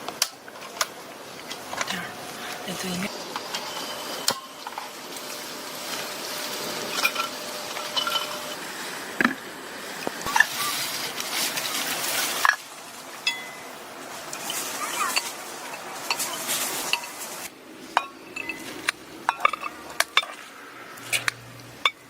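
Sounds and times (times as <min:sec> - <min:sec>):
cookware and utensils clinking: 0:01.7 - 0:08.6, 0:13.2 - 0:20.4.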